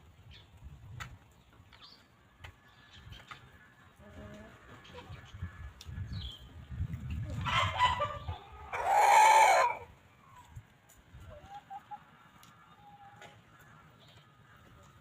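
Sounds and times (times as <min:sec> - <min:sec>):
faint chicken clucks: 0:02.0 - 0:15.0
chickens squawking: 0:07.3 - 0:10.5
chicken drawn-out call: 0:07.4 - 0:10.5.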